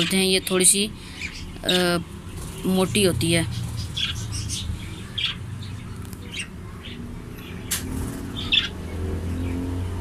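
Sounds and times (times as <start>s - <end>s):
parrots squawking and chirping: 3.4s - 9.6s.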